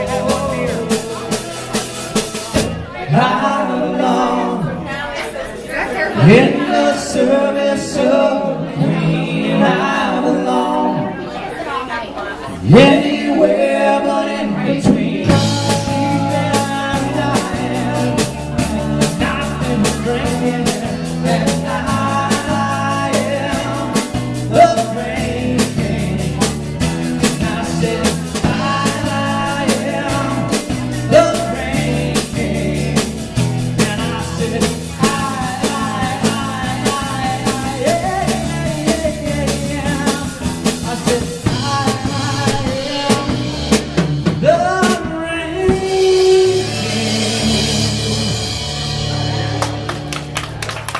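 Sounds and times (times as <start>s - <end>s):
drum kit: 0.0s - 3.4s, 14.8s - 50.9s
live rock band playing: 0.0s - 4.9s, 14.5s - 50.9s
person singing: 0.0s - 4.9s, 12.6s - 49.4s.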